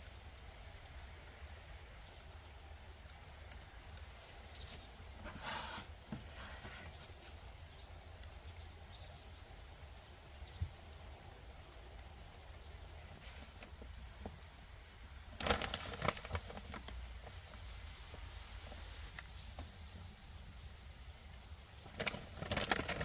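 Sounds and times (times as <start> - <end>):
steady high-pitched hiss: 0.0 - 23.0
faint clicks: 3.0 - 4.1.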